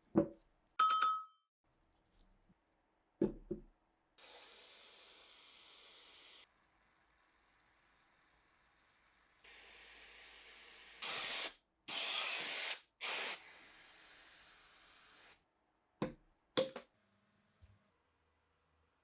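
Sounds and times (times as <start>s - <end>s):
spray nozzle hissing: 9.5s - 15.4s.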